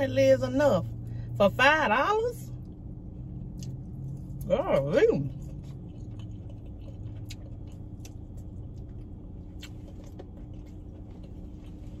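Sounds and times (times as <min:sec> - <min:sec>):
low hum inside a car: 0:00.0 - 0:12.0
chewing: 0:03.4 - 0:12.0.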